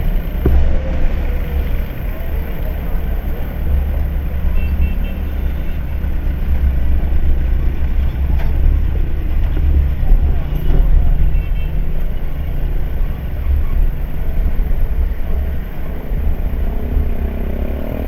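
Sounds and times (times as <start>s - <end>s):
motorbike rumble: 0.0s - 18.0s
wind on microphone: 0.0s - 18.0s.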